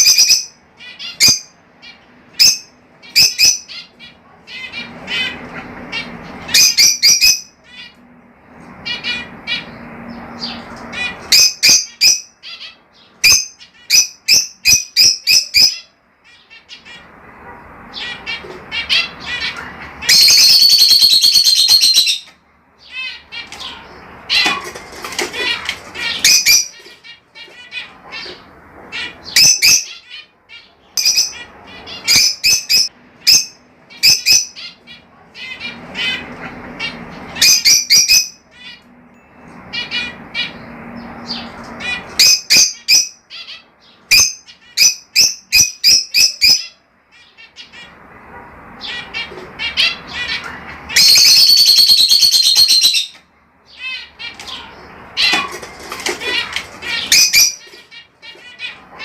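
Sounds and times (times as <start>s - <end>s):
budgerigars chirping and squawking: 0.0s - 59.0s
loud drawn-out squawk: 17.9s - 22.2s, 48.8s - 59.0s.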